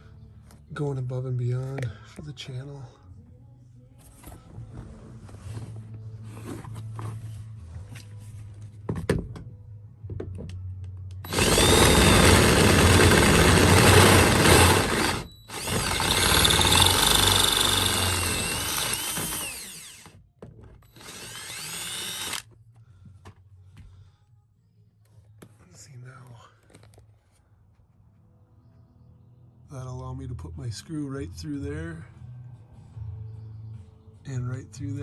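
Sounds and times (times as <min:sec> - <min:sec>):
electric drill boring: 0:11.3 - 0:20.2, 0:20.9 - 0:22.4.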